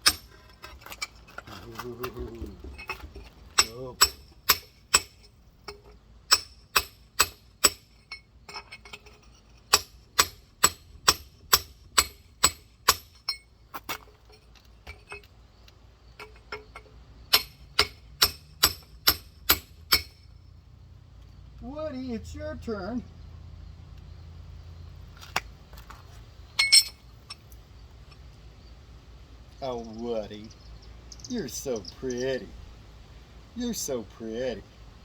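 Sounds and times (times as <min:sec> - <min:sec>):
rock hammer striking geode: 0:00.0 - 0:00.4, 0:03.6 - 0:05.2, 0:06.3 - 0:08.0, 0:09.7 - 0:13.3, 0:17.3 - 0:20.2.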